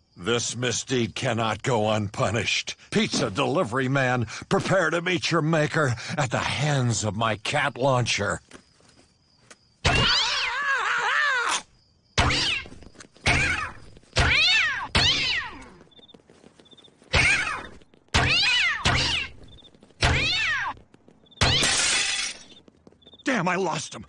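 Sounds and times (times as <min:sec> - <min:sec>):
cartoon cats yowling: 0:09.8 - 0:12.6, 0:13.3 - 0:15.8, 0:17.1 - 0:19.4, 0:20.0 - 0:20.8.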